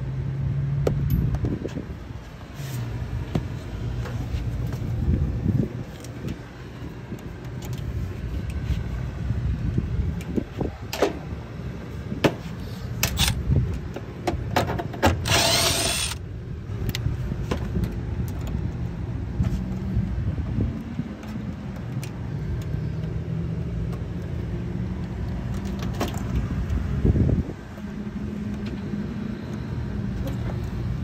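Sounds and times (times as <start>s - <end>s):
power tool whir: 15.2s - 16.2s.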